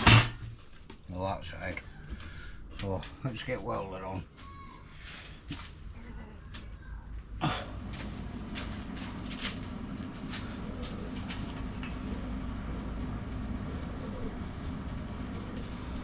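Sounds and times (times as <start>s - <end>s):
welding set humming: 7.2s - 16.0s.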